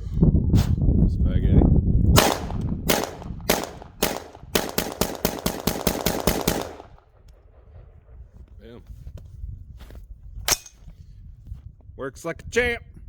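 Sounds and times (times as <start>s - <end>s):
low rumble: 0.0s - 5.1s
rifle shots: 2.2s - 8.0s.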